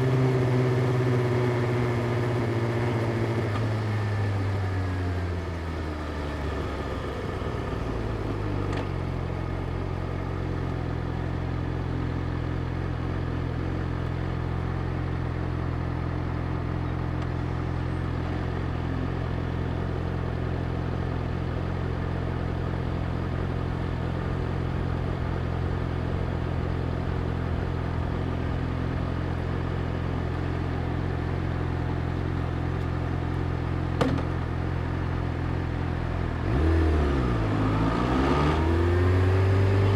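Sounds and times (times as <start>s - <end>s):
motorcycle engine idling: 0.0s - 36.5s.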